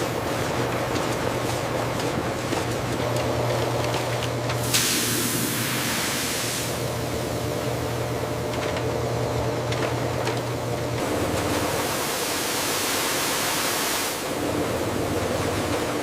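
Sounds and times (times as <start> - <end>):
bright hiss: 4.6 - 6.8.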